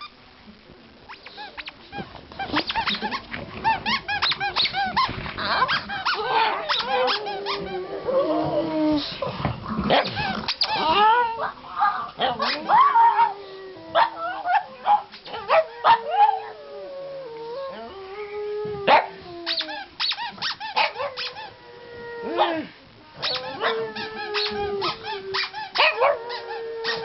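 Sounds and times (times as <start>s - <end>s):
dogs howling: 5.5s - 9.4s, 10.1s - 19.5s, 20.8s - 27.0s.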